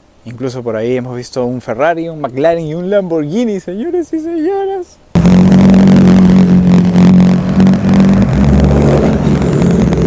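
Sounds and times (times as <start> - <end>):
sports car engine driving past: 5.2 - 10.0.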